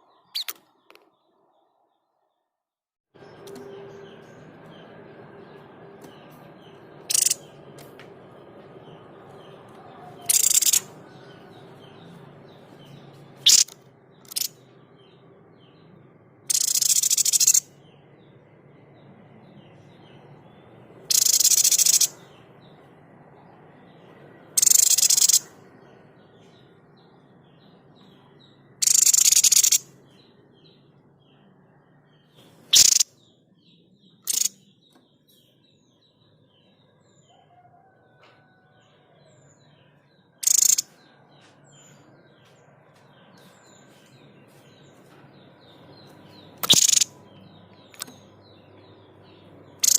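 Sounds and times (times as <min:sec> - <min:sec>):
bird giving harsh calls: 0:07.1 - 0:07.4, 0:10.1 - 0:10.9, 0:13.5 - 0:14.5, 0:16.5 - 0:17.7, 0:21.1 - 0:22.2, 0:24.6 - 0:25.5, 0:28.8 - 0:29.9, 0:32.7 - 0:33.1, 0:34.3 - 0:34.5, 0:40.4 - 0:40.9, 0:46.6 - 0:47.1
faint chirping: 0:09.9 - 0:10.9, 0:24.6 - 0:25.5, 0:32.0 - 0:33.1, 0:40.4 - 0:41.1, 0:46.0 - 0:49.9.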